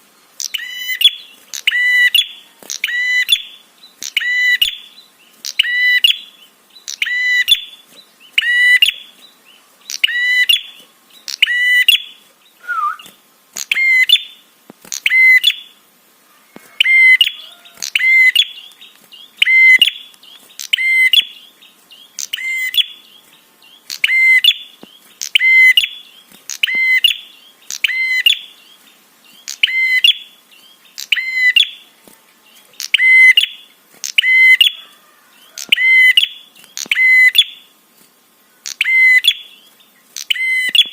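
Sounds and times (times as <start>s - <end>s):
bird sharp repeated call: 0.4s - 6.3s, 9.9s - 15.8s, 16.4s - 18.7s, 19.4s - 21.4s, 23.9s - 28.5s, 29.5s - 30.4s, 31.0s - 31.8s, 32.8s - 37.7s, 38.6s - 39.6s, 40.2s - 40.9s.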